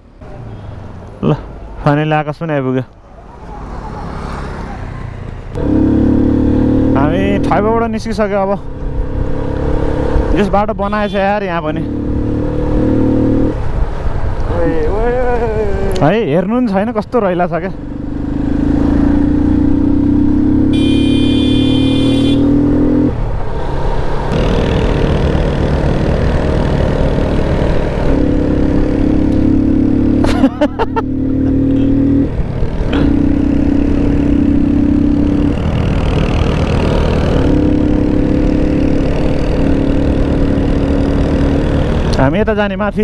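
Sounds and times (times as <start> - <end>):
motorcycle engine running: 17.8 - 22.5, 24.3 - 31.9.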